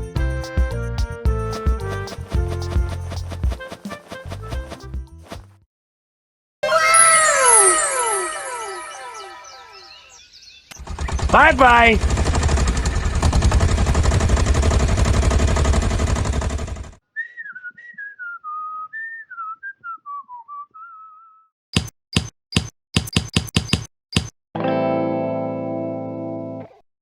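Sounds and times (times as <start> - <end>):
loud dense rumbling: 10.8 - 16.9
person whistling a tune: 17.1 - 21.5.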